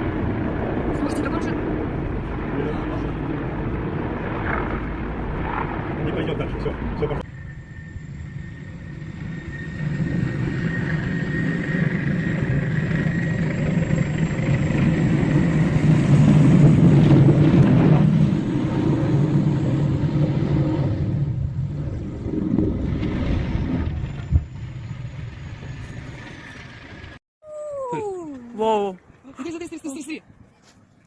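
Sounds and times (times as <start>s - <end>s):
vehicle engine rumbling: 1.0s - 27.2s
thin steady whine: 7.1s - 15.9s.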